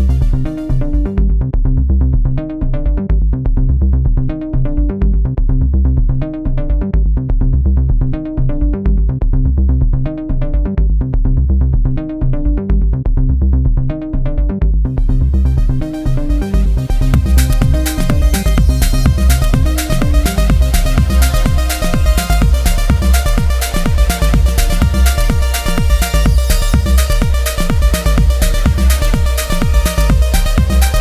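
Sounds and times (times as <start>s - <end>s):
electronic dance music: 15.1s - 31.0s.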